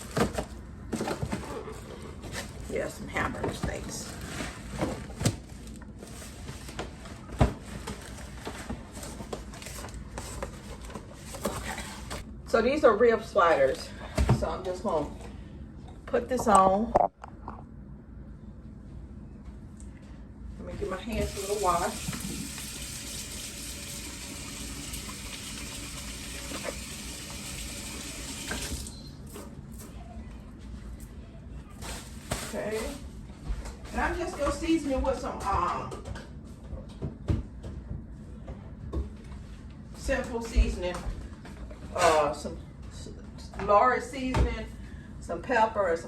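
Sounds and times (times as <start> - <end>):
faucet running: 21.2 - 29.1.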